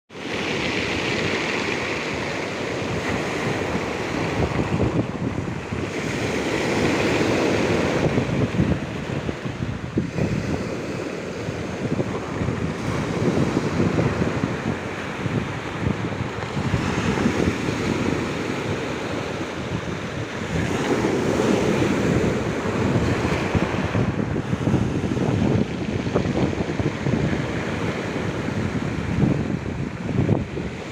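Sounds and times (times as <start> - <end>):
sea waves breaking on shore: 0.1 - 30.9
wind buffeting microphone: 0.2 - 30.9.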